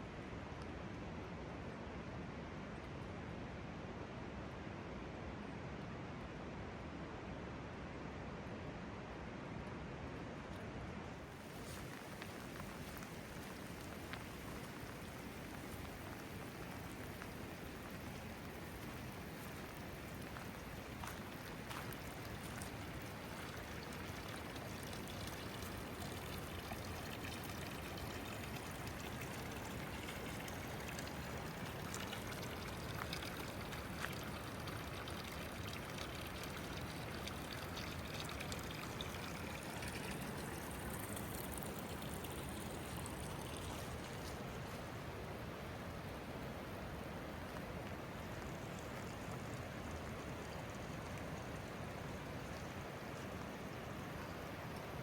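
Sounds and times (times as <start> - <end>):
water pouring and trickling: 11.2 - 55.0
raindrops ticking: 11.4 - 44.5.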